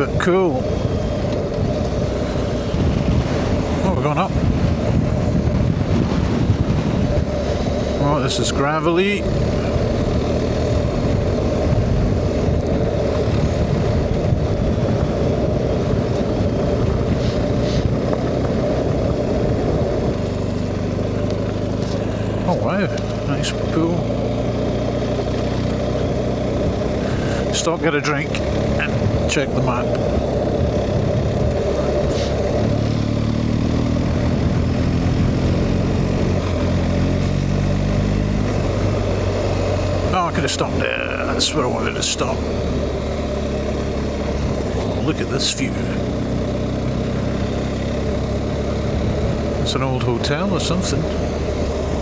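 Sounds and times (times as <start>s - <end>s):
motorcycle engine running: 0.0s - 52.0s
short hissing sounds: 17.2s - 17.9s.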